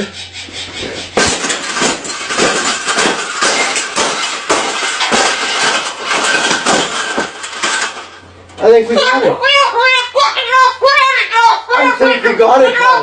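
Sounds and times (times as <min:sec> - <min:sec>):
wire cage bars rattling: 0:01.2 - 0:08.2.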